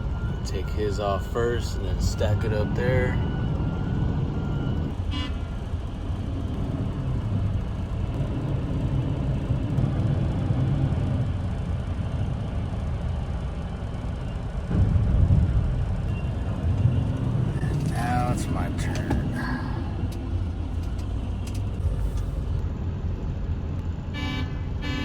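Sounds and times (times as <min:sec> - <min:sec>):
heavy diesel engine rumbling: 0:13.4 - 0:25.0.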